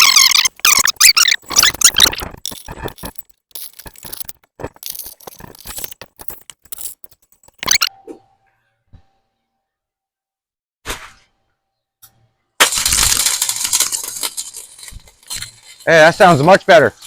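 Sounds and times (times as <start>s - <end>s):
welding arc crackling: 0.0s - 7.9s.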